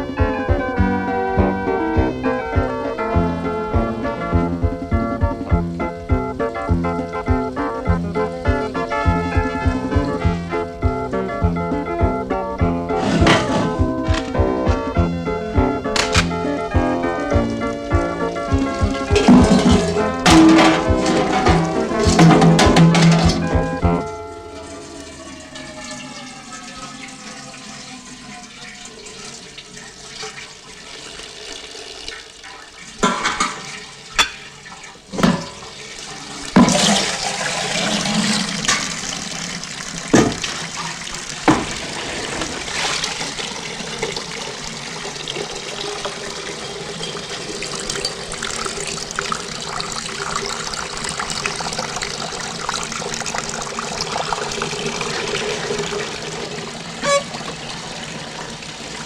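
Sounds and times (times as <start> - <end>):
water running and splashing: 0.0 - 59.0
sharp knocks and clanks: 13.0 - 24.2, 33.0 - 35.8, 40.0 - 40.7, 41.4 - 42.6.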